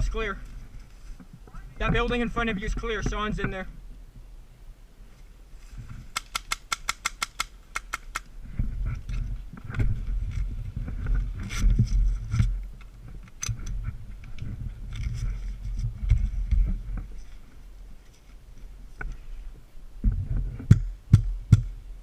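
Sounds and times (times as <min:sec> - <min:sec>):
low thumps and rustling of gear: 0:08.4 - 0:19.2, 0:20.0 - 0:21.8.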